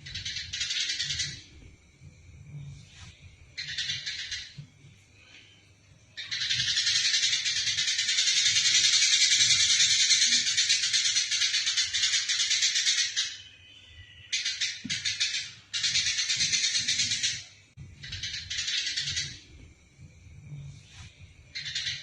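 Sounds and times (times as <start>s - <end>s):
sparrows chattering harshly: 6.2s - 19.5s, 21.5s - 22.0s.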